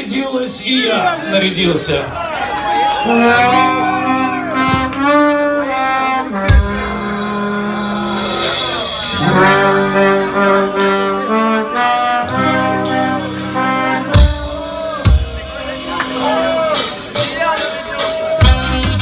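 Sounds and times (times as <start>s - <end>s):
band with horns playing: 0.0s - 19.0s
heavy drum hits: 4.6s - 5.2s.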